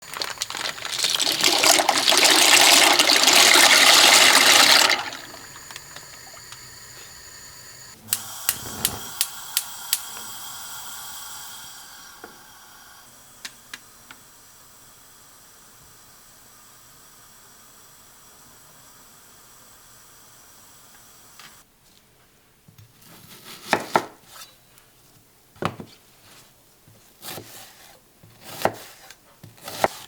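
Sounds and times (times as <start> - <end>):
water pouring: 0.0 - 6.5.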